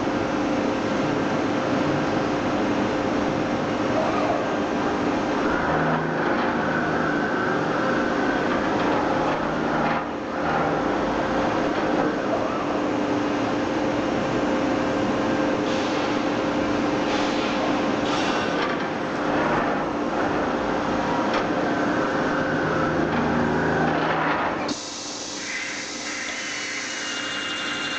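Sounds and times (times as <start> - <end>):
steady machine hum: 0.0 - 27.9
fan-like hiss: 24.6 - 27.2.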